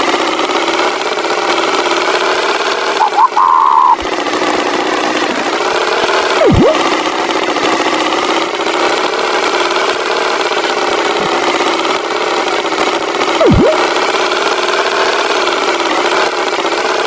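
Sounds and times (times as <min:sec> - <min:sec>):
tractor engine running: 0:00.0 - 0:17.0
swooping pitch-dip effect: 0:03.0 - 0:04.0, 0:06.4 - 0:06.9, 0:13.4 - 0:14.0.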